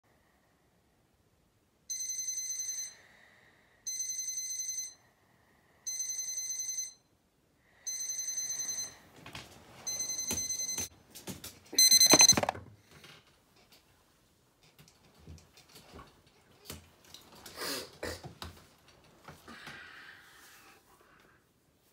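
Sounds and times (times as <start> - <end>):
phone alarm ringing: 1.9 - 3.0, 3.9 - 5.0, 5.9 - 7.1, 7.9 - 9.0, 9.9 - 10.9, 11.8 - 12.6.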